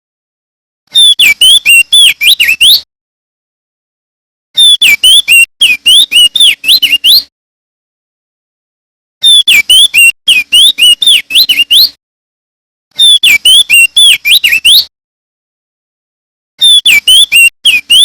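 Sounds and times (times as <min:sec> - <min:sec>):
bird singing whistled notes: 0:01.0 - 0:02.9, 0:04.6 - 0:07.3, 0:09.2 - 0:12.0, 0:13.0 - 0:14.9, 0:16.6 - 0:18.0.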